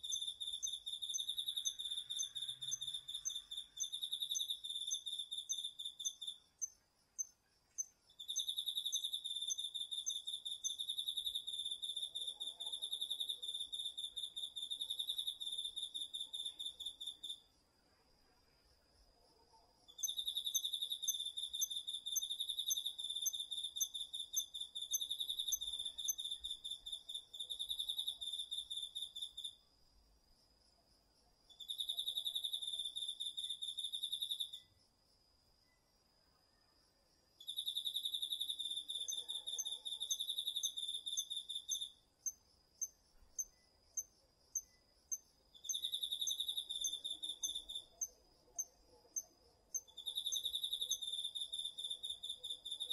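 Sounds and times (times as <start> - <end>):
loud high-pitched insect trill: 0.0 - 6.5, 37.4 - 48.1, 49.7 - 52.9
faint high insect ringing: 0.0 - 52.9
sharp cricket chirps: 0.0 - 52.9.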